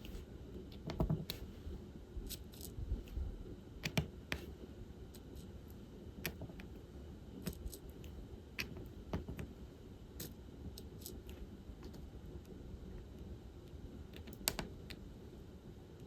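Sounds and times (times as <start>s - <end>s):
faint low hum: 0.0s - 16.0s
small clicks and taps: 0.1s - 1.4s, 3.8s - 4.5s, 6.2s - 6.8s, 7.4s - 9.5s, 14.1s - 15.0s.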